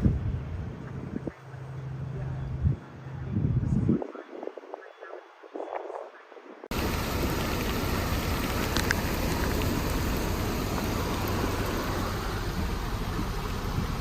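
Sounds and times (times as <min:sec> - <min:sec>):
heavy rain or floodwater rushing: 0:06.7 - 0:14.0.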